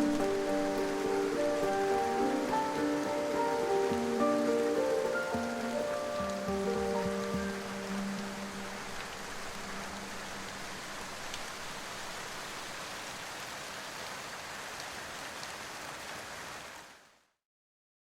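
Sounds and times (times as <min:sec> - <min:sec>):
held music notes: 0:00.0 - 0:10.5
steady rain falling: 0:00.0 - 0:17.4.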